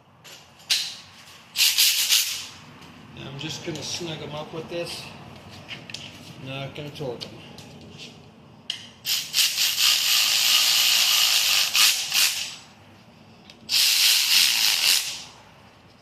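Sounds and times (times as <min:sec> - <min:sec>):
air ratchet running: 0:01.6 - 0:02.5, 0:09.0 - 0:12.6, 0:13.7 - 0:15.4.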